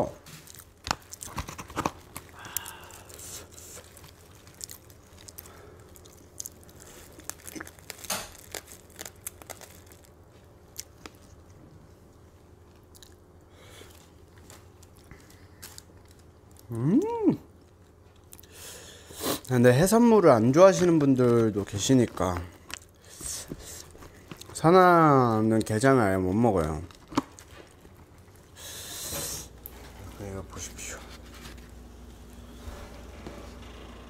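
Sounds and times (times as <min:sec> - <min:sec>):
chewing and crunching: 0:00.2 - 0:11.6, 0:12.6 - 0:18.6, 0:20.6 - 0:28.7.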